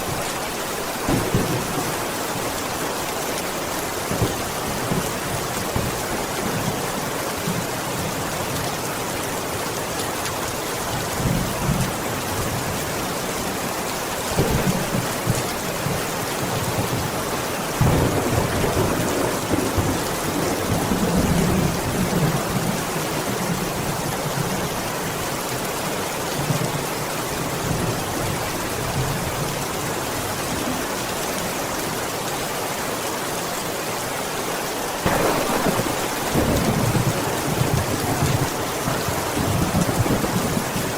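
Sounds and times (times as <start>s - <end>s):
steady rainfall: 0.0s - 40.9s
thunder rumbling: 1.1s - 2.9s, 17.8s - 22.8s, 35.0s - 40.9s.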